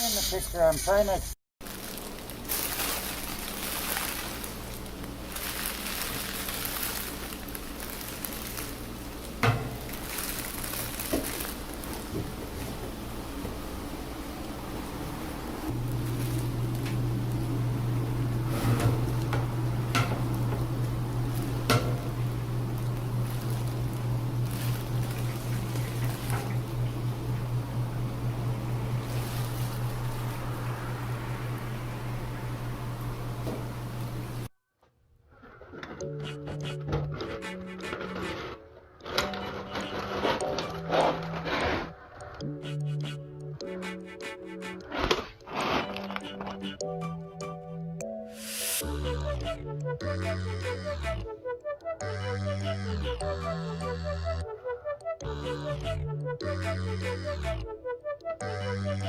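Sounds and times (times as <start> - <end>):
air rushing through dryer vent: 11.5 - 34.5
low hum: 11.8 - 34.5.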